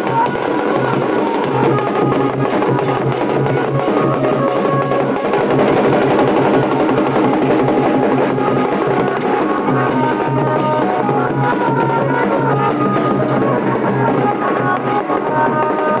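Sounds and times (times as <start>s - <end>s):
dhol drums beaten: 0.0s - 16.0s
high held melody: 0.0s - 16.0s.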